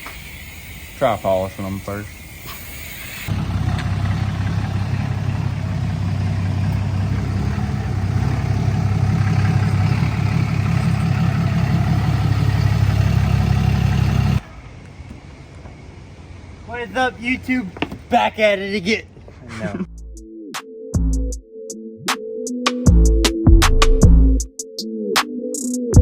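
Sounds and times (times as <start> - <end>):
diesel truck engine rumbling: 3.0 - 19.9.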